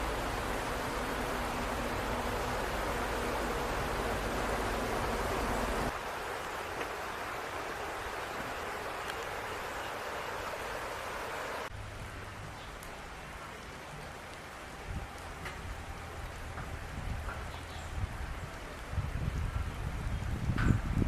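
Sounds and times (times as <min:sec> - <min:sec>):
running water: 0:00.0 - 0:21.0
wet outdoor rushing noise: 0:00.0 - 0:21.0.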